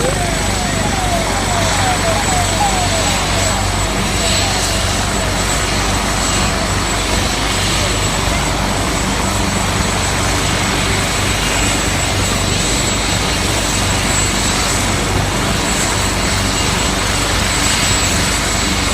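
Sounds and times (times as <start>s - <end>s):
high whine: 0.0s - 7.0s
helicopter rotor and engine: 0.0s - 18.9s.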